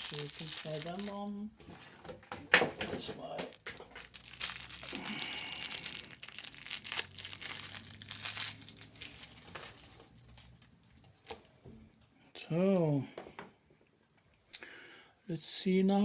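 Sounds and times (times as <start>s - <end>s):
packaging crinkling and rustling: 0.0s - 11.6s.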